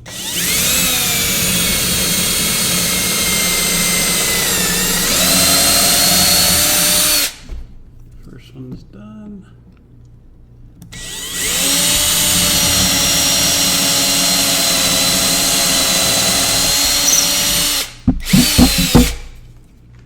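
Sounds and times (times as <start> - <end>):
power drill drilling into wall: 0.0 - 7.5, 11.0 - 19.3.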